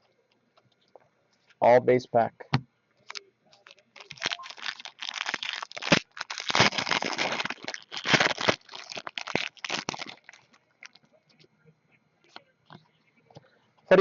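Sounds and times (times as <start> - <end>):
foil wrapper crinkling and tearing: 3.1 - 11.1.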